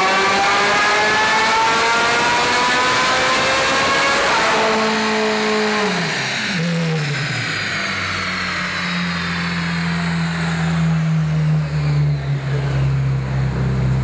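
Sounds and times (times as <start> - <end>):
high whine falling in pitch: 4.8 - 14.0.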